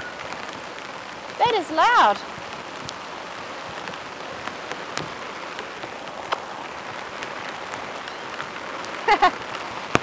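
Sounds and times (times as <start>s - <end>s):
heavy rain drumming on a tarp: 0.0s - 10.0s.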